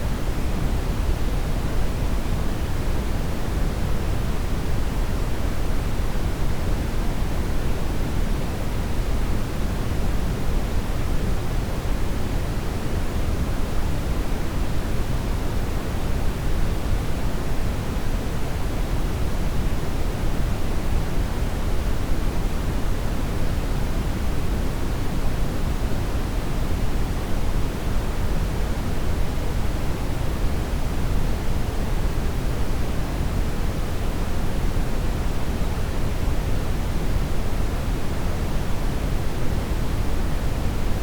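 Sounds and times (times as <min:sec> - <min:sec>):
brown noise hiss: 0:00.0 - 0:41.0.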